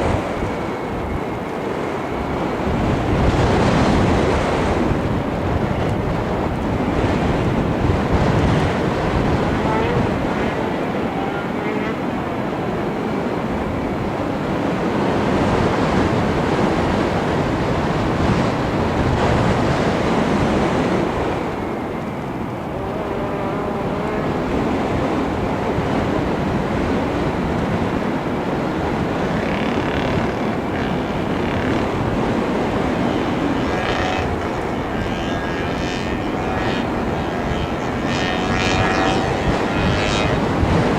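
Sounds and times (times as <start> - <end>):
motor and propeller drone: 0.0 - 40.9
wind rushing over microphone: 0.0 - 40.9.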